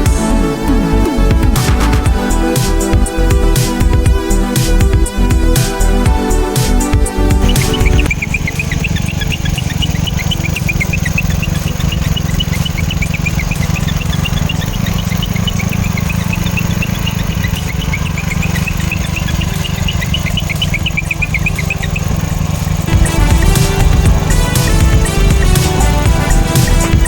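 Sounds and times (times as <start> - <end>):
lawn tractor engine humming: 0.0 - 27.0.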